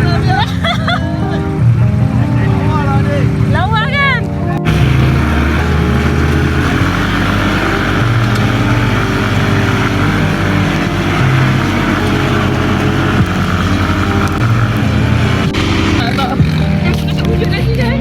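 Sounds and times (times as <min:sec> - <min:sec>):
buggy engine revving: 0:00.0 - 0:18.0
wind and driving noise: 0:00.0 - 0:18.0.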